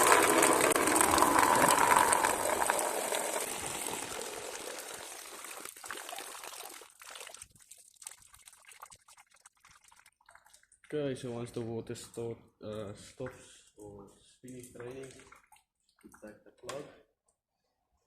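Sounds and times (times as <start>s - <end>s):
coolant pouring from drain: 0.0s - 11.0s
water dripping: 0.0s - 11.4s, 12.2s - 16.8s.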